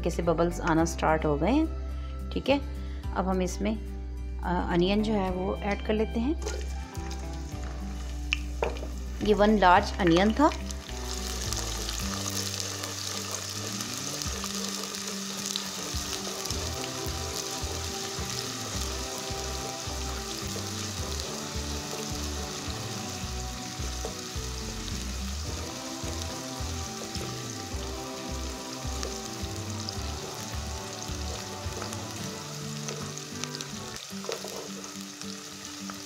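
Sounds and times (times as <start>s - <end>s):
background music: 0.0s - 36.0s
onions sizzling in hot oil: 6.4s - 36.0s.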